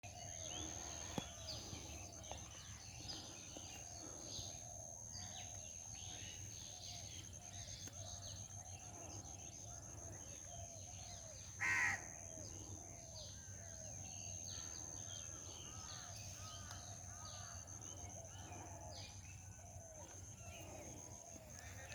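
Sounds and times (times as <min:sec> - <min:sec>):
birds chirping: 0:00.0 - 0:21.9
crow cawing: 0:11.5 - 0:12.4.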